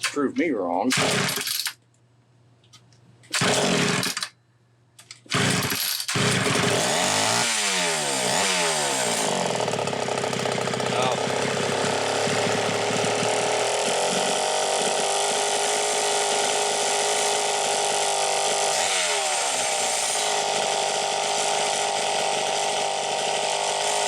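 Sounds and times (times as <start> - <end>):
chainsaw running: 0.9 - 1.7, 3.3 - 4.3, 5.3 - 24.0.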